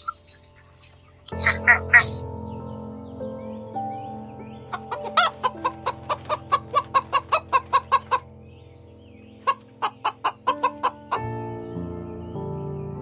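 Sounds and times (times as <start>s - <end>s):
chicken clucking: 0.0s - 2.2s, 4.7s - 8.2s, 9.4s - 11.2s.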